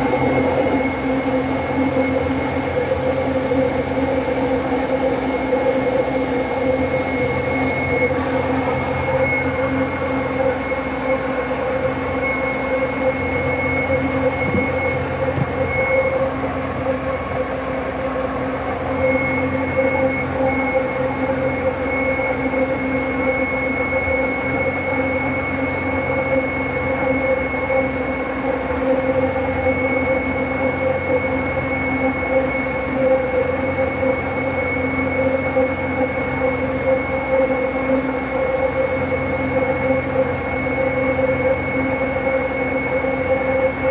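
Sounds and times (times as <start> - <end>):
engine hum: 0.0 - 3.5, 13.7 - 17.0
engine squeal: 0.0 - 43.9.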